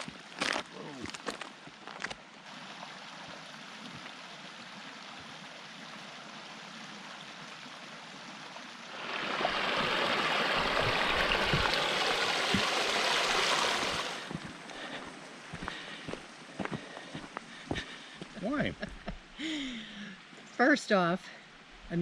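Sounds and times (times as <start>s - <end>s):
stream water rushing: 1.6s - 18.6s.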